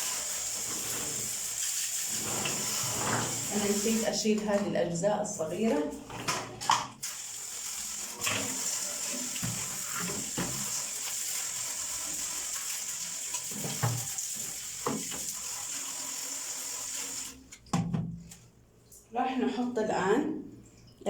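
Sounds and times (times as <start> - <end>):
tap water splashing: 8.2 - 10.9, 13.3 - 15.4.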